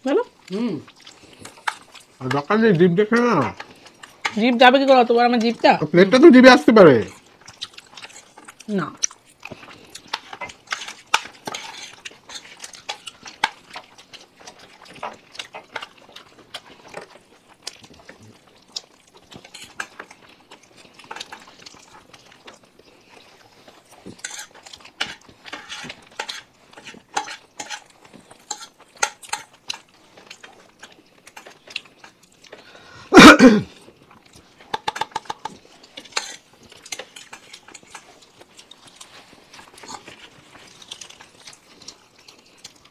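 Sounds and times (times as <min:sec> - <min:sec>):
spoons clinking and scraping on plates: 0:09.6 - 0:15.9, 0:19.3 - 0:20.1, 0:24.1 - 0:30.5, 0:34.6 - 0:41.4.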